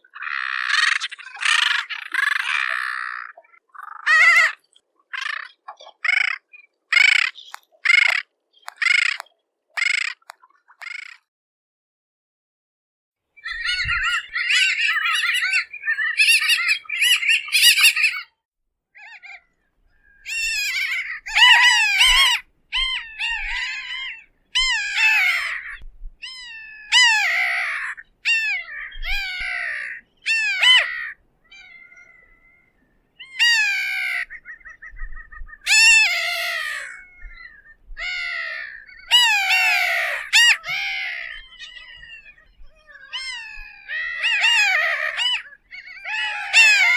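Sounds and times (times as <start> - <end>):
terns calling: 0.0 - 11.3, 13.4 - 18.3, 19.0 - 46.9.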